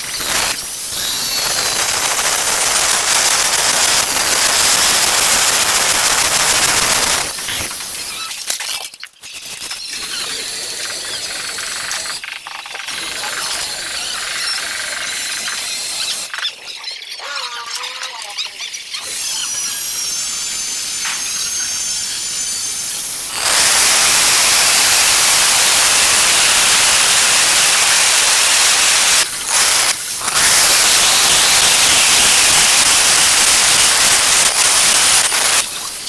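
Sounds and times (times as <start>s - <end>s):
angle grinder whining: 0.0s - 8.2s, 12.9s - 16.3s, 19.0s - 36.0s
grinder disc cutting tile: 0.0s - 8.6s, 12.8s - 16.3s, 19.0s - 36.0s.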